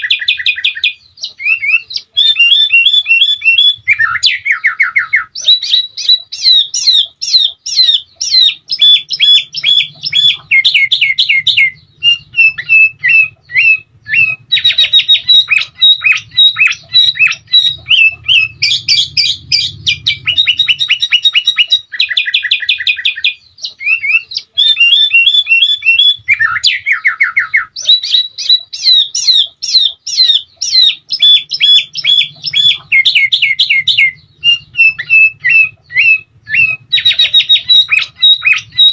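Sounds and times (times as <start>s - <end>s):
bird singing trills: 0.0s - 38.9s.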